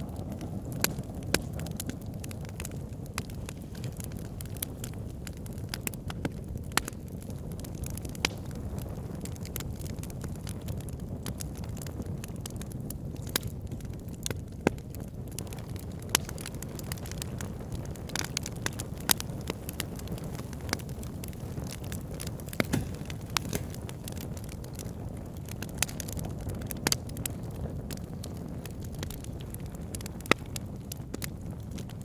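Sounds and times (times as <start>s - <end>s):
fire crackling and popping: 0.0s - 32.0s
fire flame rumbling: 0.0s - 32.0s.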